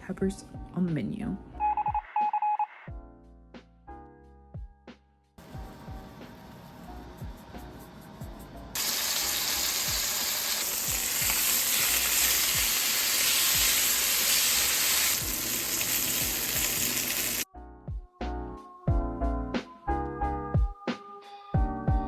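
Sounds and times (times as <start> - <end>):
food sizzling in a hot pan: 8.8 - 17.5.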